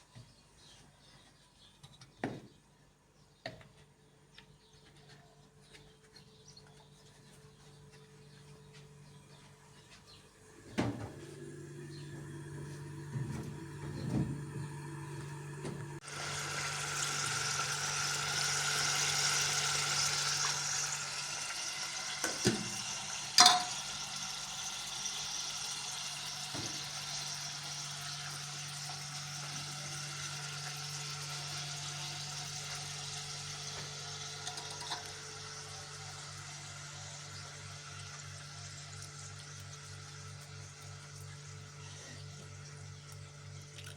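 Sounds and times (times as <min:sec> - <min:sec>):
water running: 0:10.5 - 0:37.4
pots and dishes clinking: 0:22.2 - 0:24.2, 0:34.4 - 0:35.2.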